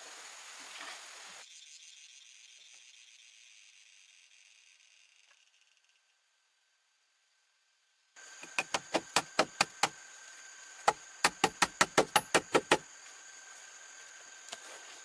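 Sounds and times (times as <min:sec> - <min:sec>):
high insect drone: 0:00.0 - 0:15.0
rapid sharp chopping knocks: 0:08.4 - 0:10.0, 0:10.8 - 0:12.8.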